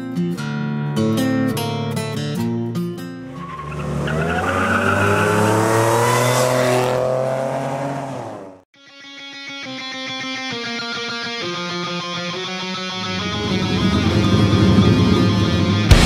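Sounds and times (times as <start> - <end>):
car engine accelerating hard: 3.3 - 8.6, 13.0 - 16.0.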